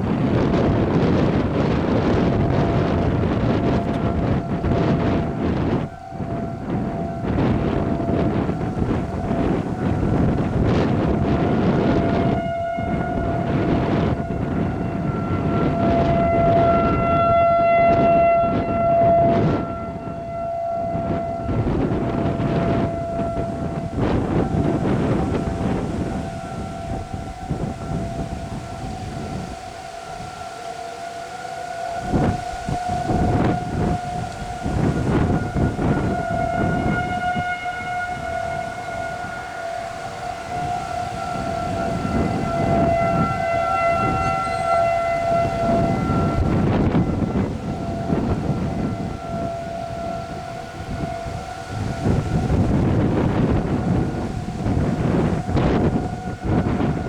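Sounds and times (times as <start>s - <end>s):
tornado warning siren: 0.0s - 57.0s
wind buffeting microphone: 0.0s - 57.0s.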